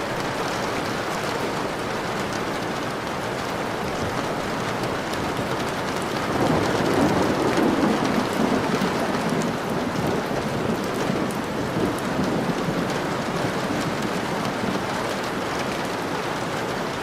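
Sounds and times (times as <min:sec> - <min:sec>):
heavy rain falling: 0:00.0 - 0:17.0
thunder rumble: 0:06.1 - 0:15.4.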